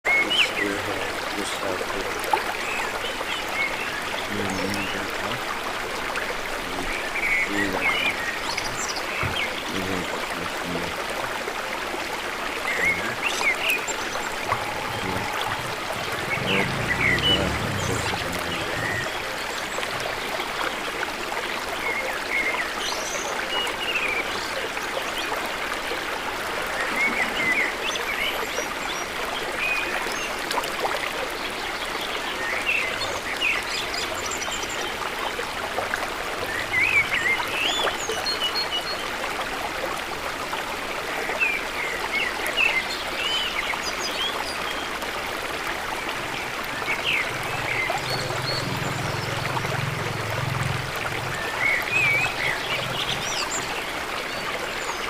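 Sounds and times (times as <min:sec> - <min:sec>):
birds chirping: 0:00.0 - 0:11.0, 0:12.5 - 0:21.0, 0:45.9 - 0:55.0
stream of running water: 0:00.0 - 0:55.0.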